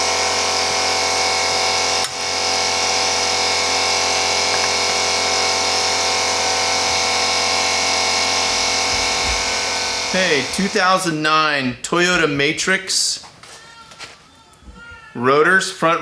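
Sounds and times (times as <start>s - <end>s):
mechanical hum and whine: 0.0s - 11.4s.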